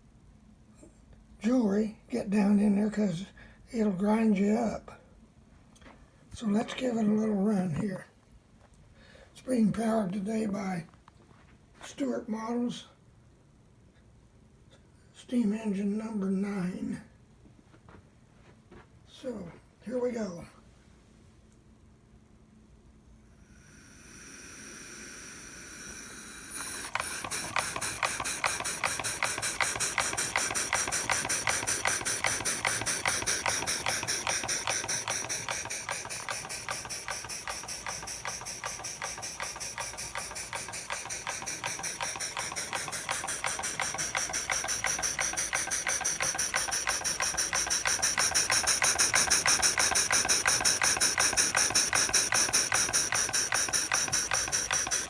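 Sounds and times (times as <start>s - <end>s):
steam hissing: 23.3s - 55.0s
steam engine chuffing: 23.4s - 55.0s.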